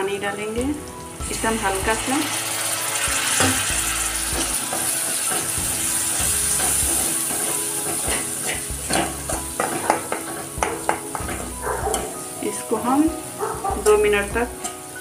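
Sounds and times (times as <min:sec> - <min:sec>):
spices sizzling in hot oil: 0:00.0 - 0:15.0.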